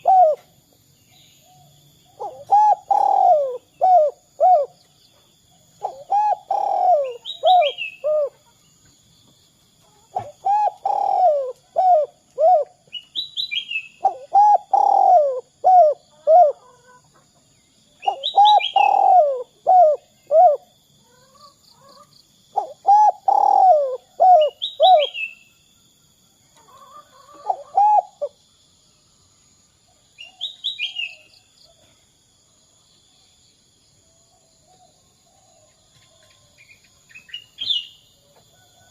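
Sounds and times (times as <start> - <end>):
dove cooing: 0.0 - 0.6, 2.1 - 4.8, 5.8 - 8.4, 10.1 - 12.8, 14.0 - 17.0, 18.0 - 25.3, 26.7 - 28.4
small bird chirping: 0.0 - 28.4, 29.9 - 31.9, 34.6 - 38.4.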